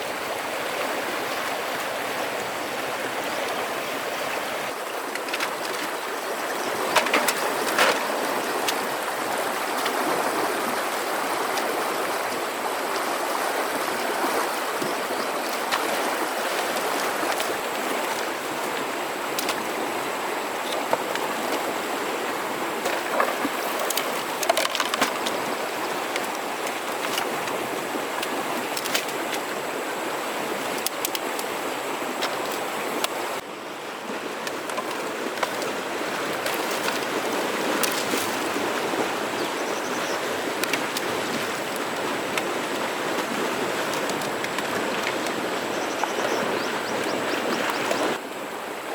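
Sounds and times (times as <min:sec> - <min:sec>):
river water flowing: 0:00.0 - 0:48.9.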